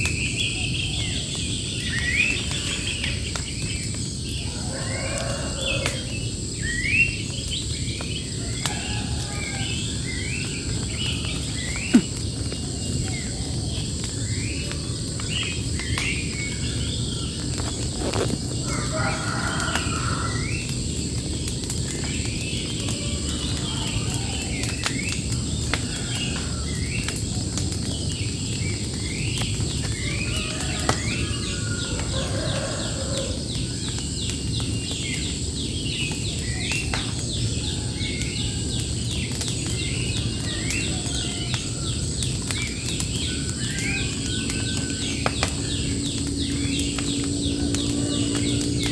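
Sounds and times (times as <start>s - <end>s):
small birds chirping: 0.0s - 48.9s
low outdoor rumble: 42.8s - 48.9s.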